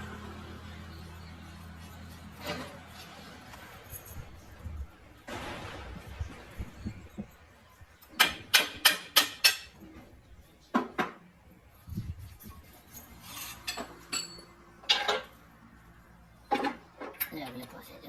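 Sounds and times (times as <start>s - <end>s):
steel clinking on steel: 12.8s - 15.4s.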